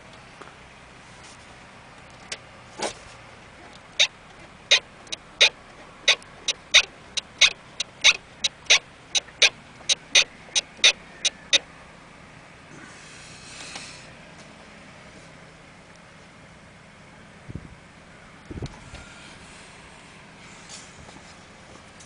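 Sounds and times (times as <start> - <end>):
strut bearing popping: 3.6 - 11.6.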